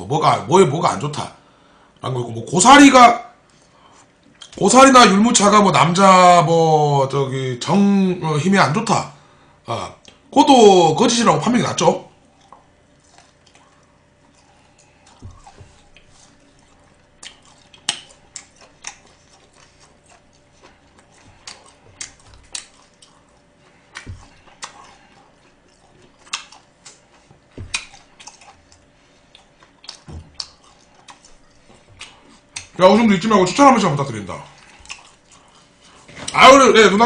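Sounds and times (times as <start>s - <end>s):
man chewing food: 3.4s - 4.6s, 9.2s - 10.3s, 12.1s - 36.5s.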